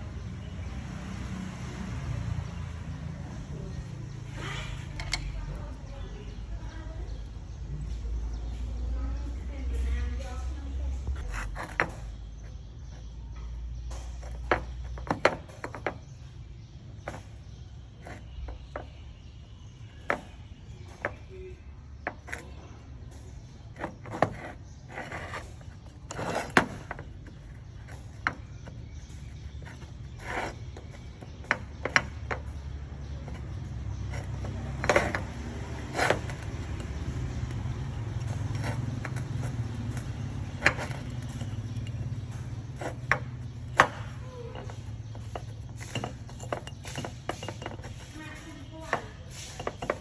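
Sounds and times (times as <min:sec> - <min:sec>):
hand tools clinking on metal: 0:37.5 - 0:50.0.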